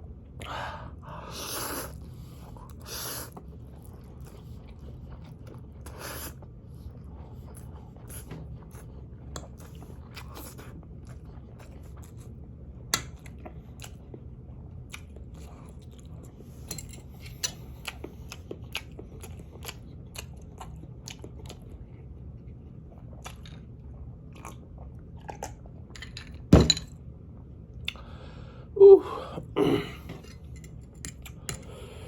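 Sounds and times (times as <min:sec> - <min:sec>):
chewing noodles: 0:01.6 - 0:25.9.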